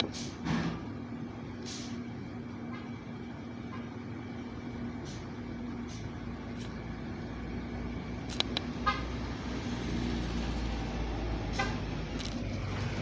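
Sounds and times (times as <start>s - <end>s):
garbage truck engine rumbling: 0.0s - 13.0s
road traffic: 0.0s - 13.0s
sharp clicks: 8.2s - 8.7s.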